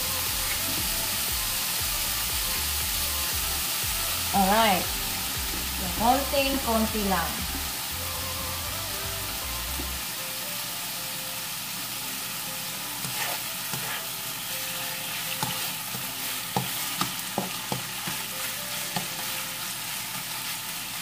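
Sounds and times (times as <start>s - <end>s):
meat sizzling in a pan: 0.0s - 21.0s
utensil scraping a pan: 13.0s - 21.0s.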